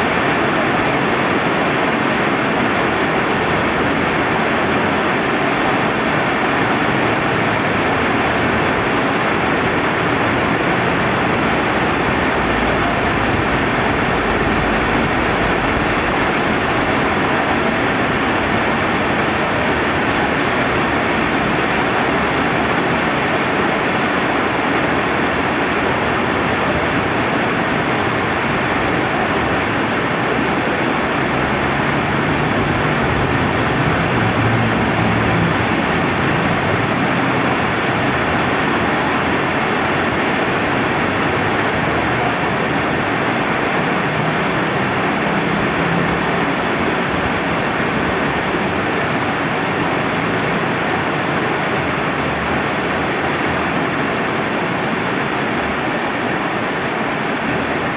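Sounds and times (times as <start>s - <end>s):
rain falling: 0.0s - 57.9s
river water flowing: 0.0s - 57.9s
low rumble: 10.8s - 19.2s.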